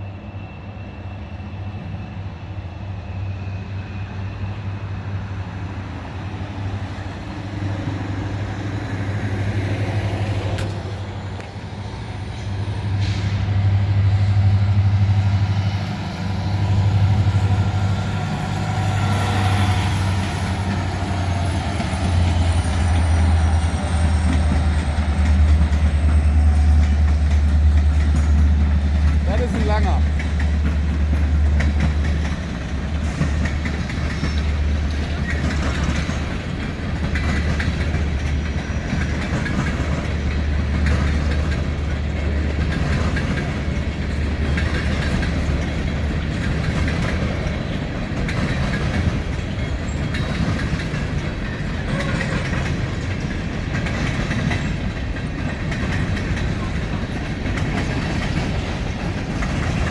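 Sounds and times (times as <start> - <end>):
wheels clicking over rail joints: 19.1 - 59.9.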